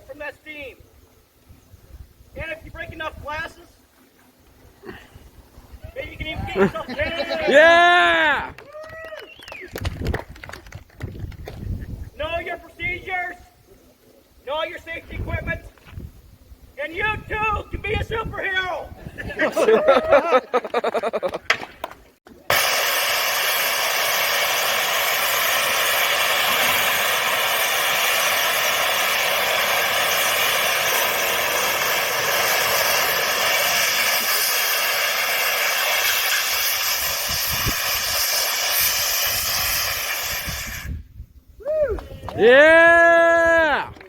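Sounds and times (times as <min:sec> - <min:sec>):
steam engine hissing: 0:22.4 - 0:41.0.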